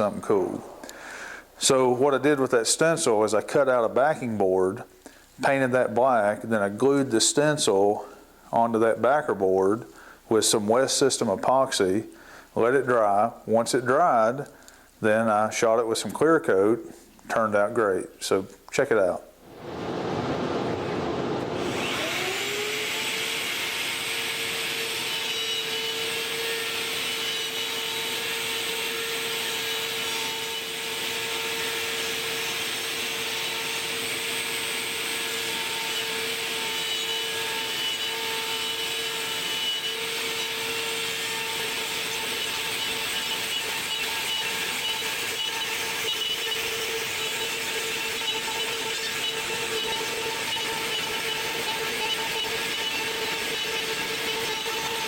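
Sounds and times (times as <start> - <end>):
router spindle whining: 20.6 - 55.0.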